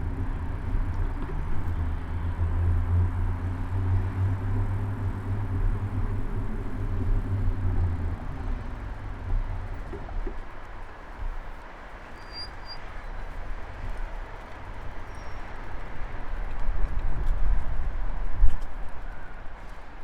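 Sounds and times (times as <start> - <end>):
city road traffic: 0.0 - 20.0
vehicle engine low hum: 0.0 - 20.0.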